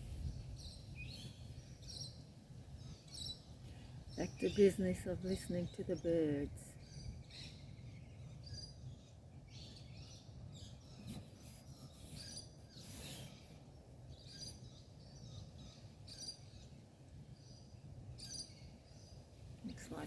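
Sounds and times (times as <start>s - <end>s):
birds chirping: 0.0s - 20.0s
low background rumble: 18.8s - 20.0s.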